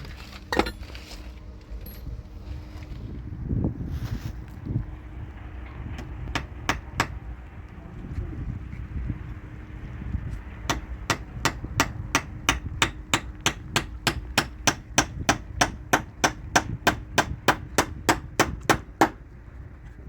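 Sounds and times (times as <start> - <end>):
hammer striking: 0.5 - 0.8, 6.0 - 7.2, 10.7 - 19.2.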